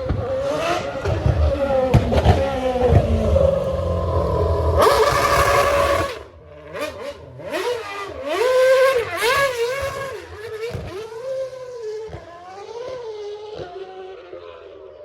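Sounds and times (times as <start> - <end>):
car engine revving past: 0.0 - 12.1
engine rev blips: 0.2 - 11.8.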